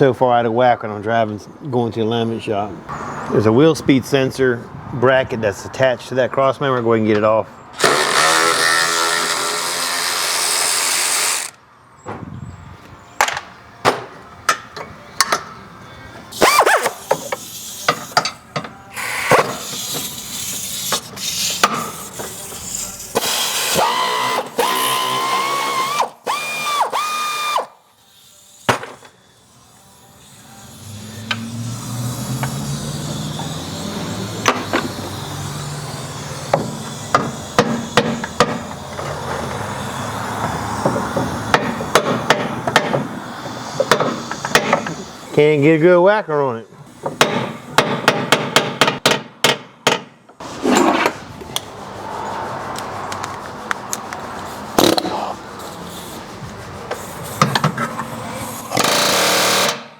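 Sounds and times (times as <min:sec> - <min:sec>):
cordless power tool whining: 0:07.8 - 0:11.6, 0:23.2 - 0:27.7.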